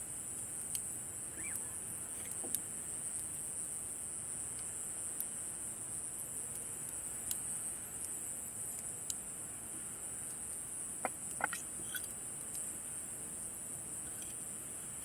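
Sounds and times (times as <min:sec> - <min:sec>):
night insects chorus: 0:00.0 - 0:15.0
campfire crackles and pops: 0:04.5 - 0:09.4, 0:10.2 - 0:15.0.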